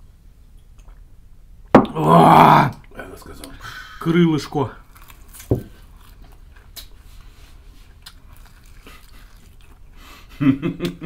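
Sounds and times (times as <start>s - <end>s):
crunchy chewing and biting: 4.5s - 10.0s.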